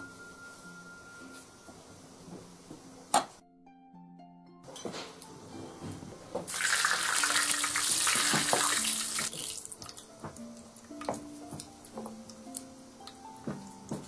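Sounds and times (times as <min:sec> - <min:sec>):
soft background music: 0:00.0 - 0:14.0
food sizzling in wok: 0:06.5 - 0:10.9.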